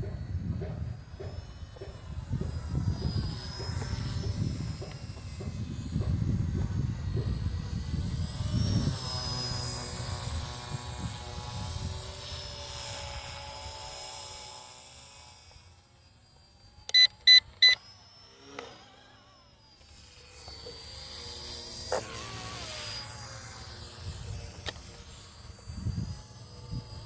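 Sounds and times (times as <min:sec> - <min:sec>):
toy helicopter motor whining: 0:00.0 - 0:27.0
short electronic beeps: 0:16.9 - 0:17.8.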